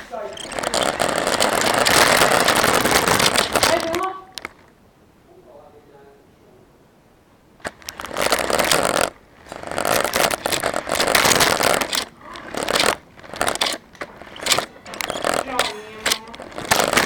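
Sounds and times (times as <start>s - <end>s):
wheels rattling and scraping: 0.0s - 4.7s, 7.6s - 17.0s
rc car motor revving: 0.4s - 4.0s, 7.8s - 17.0s.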